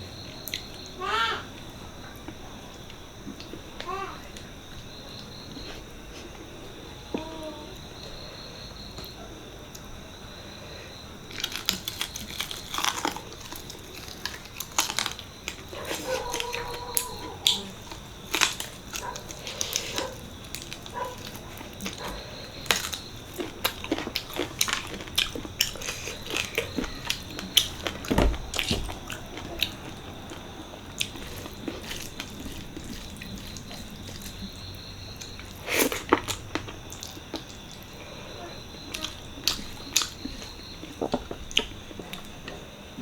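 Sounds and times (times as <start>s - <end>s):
chewing with wet smacks: 11.3s - 43.0s.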